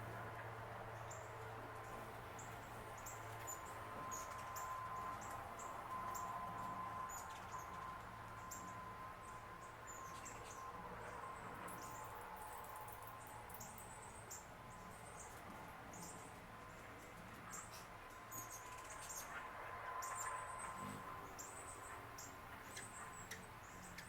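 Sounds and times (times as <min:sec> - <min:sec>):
faint steady hum: 0:00.0 - 0:24.0
small birds chirping: 0:20.0 - 0:24.0.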